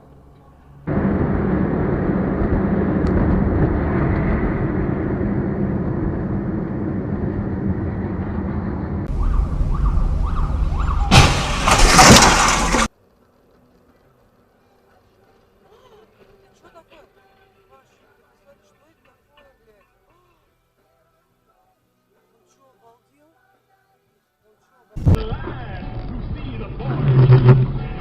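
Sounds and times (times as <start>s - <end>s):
road and engine rumble: 0.0s - 14.5s, 25.0s - 28.0s.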